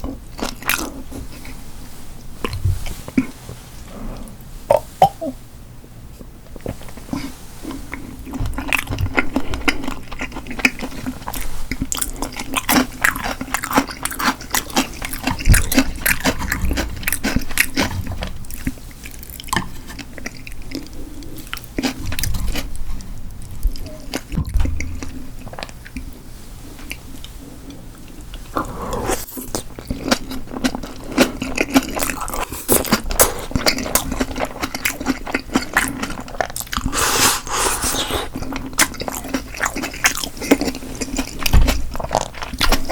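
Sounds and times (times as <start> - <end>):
person chewing food: 6.6 - 22.8, 26.8 - 42.9
wet mouth clicks: 36.7 - 38.4.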